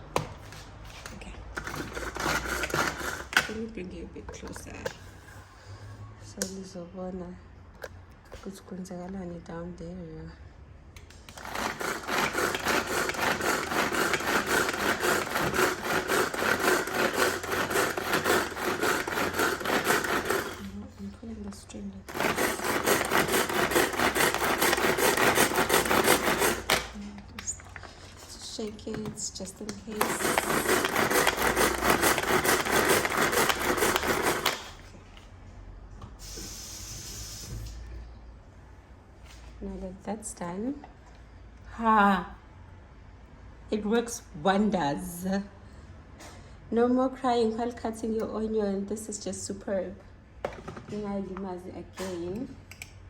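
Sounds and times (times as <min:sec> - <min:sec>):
food chopper blades whirring: 0:01.6 - 0:03.6, 0:11.3 - 0:20.8, 0:22.0 - 0:27.0, 0:29.6 - 0:34.9.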